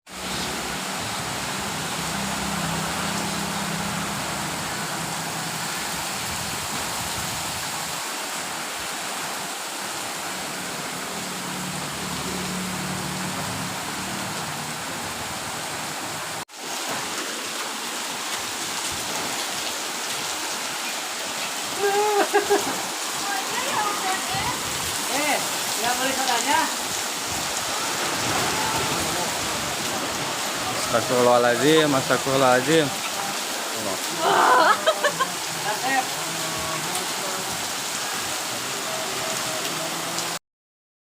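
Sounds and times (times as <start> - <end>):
hail and heavy rain: 15.9 - 40.4.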